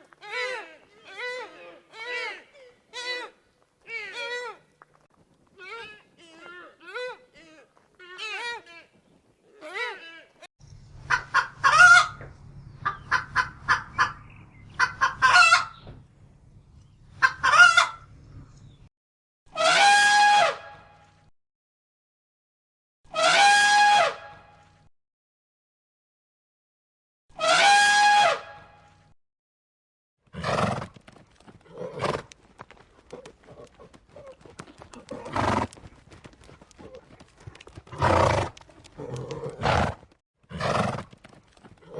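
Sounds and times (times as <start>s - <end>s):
hooves knocking: 10.6s - 18.9s, 30.8s - 40.2s, 40.9s - 41.9s
horse calling: 10.6s - 18.9s, 30.4s - 41.9s
rooster crowing: 10.7s - 16.1s, 17.2s - 18.2s
chicken clucking: 10.7s - 18.8s, 32.2s - 40.0s.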